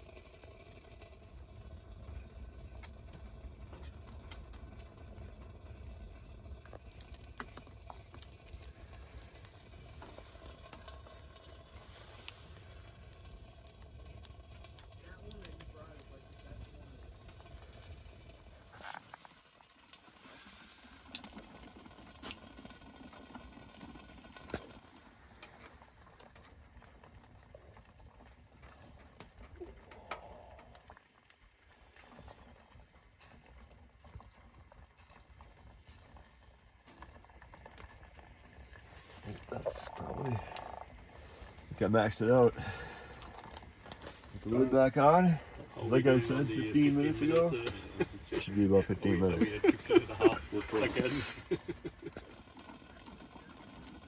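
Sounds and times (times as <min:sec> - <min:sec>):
low steady rumble: 0:00.0 - 0:18.8
food sizzling: 0:00.0 - 0:34.1, 0:34.7 - 0:54.0
small clicks and ticks: 0:00.0 - 0:54.0.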